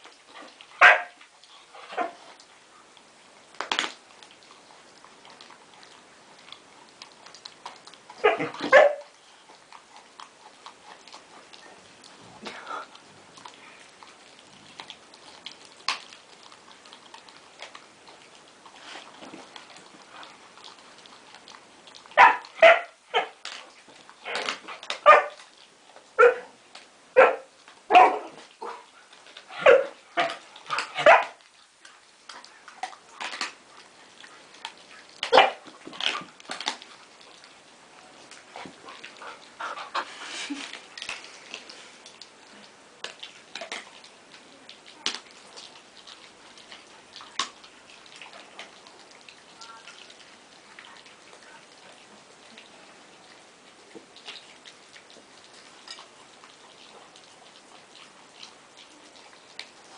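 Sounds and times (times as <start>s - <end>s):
dog barking and yipping: 0.8s - 1.2s, 8.2s - 9.1s, 22.2s - 23.4s, 25.0s - 25.4s, 26.2s - 26.5s, 27.2s - 28.8s, 29.6s - 31.4s, 35.3s - 35.6s.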